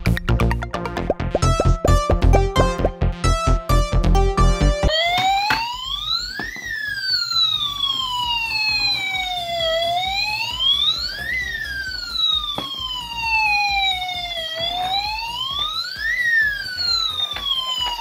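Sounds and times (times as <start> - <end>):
toy siren wailing: 4.9 - 18.0.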